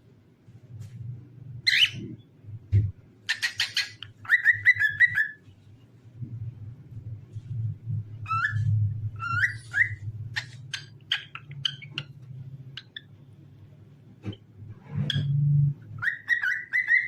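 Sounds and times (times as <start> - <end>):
cockatiel chirps: 1.7 - 2.1, 3.3 - 5.4, 8.2 - 12.2, 16.0 - 17.0
cockatiel whistling: 3.3 - 5.4, 8.2 - 12.0, 16.0 - 17.0
steady low hum: 4.0 - 16.0.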